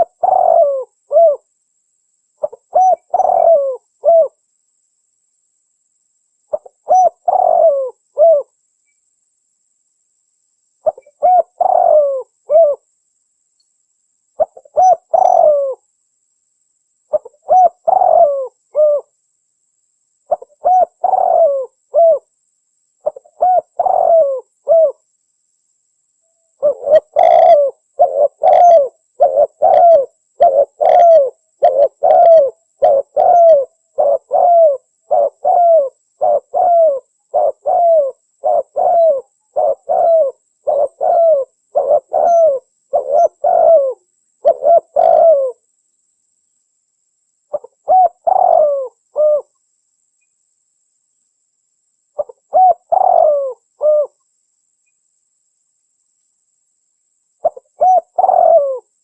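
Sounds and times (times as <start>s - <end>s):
dove cooing: 0.0s - 1.5s, 2.4s - 4.4s, 6.5s - 8.5s, 10.8s - 12.8s, 14.4s - 15.8s, 17.1s - 19.1s, 20.3s - 22.3s, 23.0s - 25.0s, 26.6s - 45.6s, 47.5s - 49.5s, 52.2s - 54.2s, 57.4s - 58.9s.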